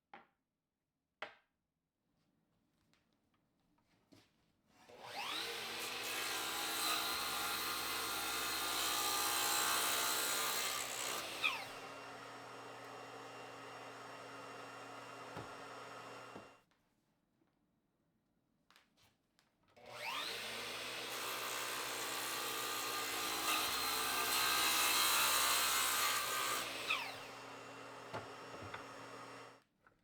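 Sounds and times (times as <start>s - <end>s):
power tool cutting wood: 4.9s - 16.6s, 19.8s - 29.6s.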